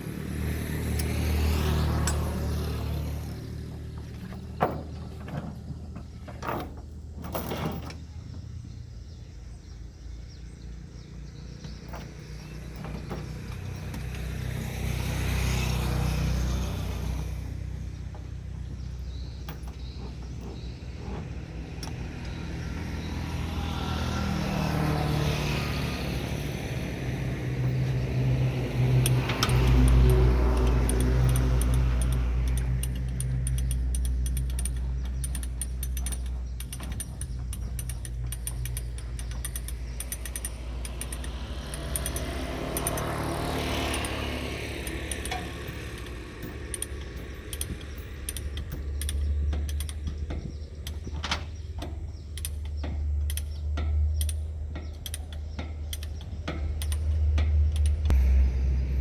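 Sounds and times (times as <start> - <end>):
bulldozer diesel engine: 0.0 - 59.0
sharp metal knocks: 27.6 - 58.4.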